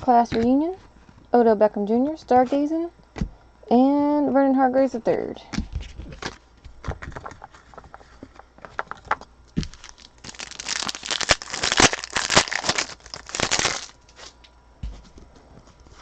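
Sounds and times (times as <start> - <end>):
cards being handled: 5.6 - 10.0
wrapper being torn open: 9.6 - 14.2.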